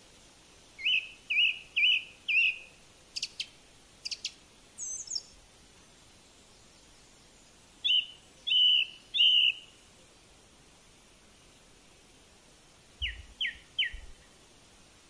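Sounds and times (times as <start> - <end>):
faint steady hiss: 0.0 - 15.0
bird chirping: 0.8 - 5.4, 6.4 - 9.8, 13.0 - 14.3.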